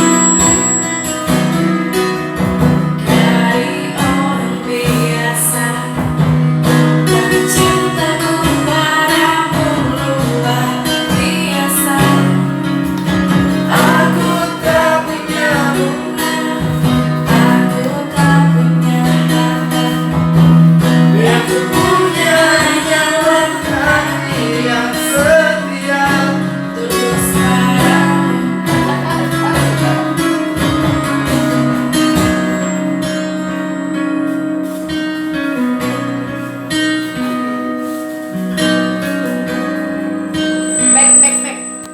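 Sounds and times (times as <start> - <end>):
acoustic guitar: 0.0 - 41.9
person singing: 2.4 - 32.8.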